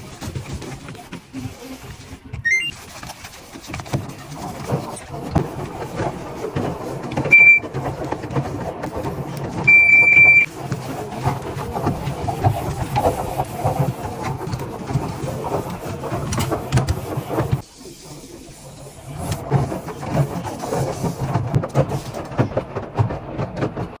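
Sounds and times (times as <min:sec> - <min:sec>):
washing machine rumble: 0:00.0 - 0:24.0
washing machine beeps: 0:02.4 - 0:02.8, 0:07.3 - 0:07.7, 0:09.6 - 0:10.5
knocks and clatter: 0:19.4 - 0:24.0.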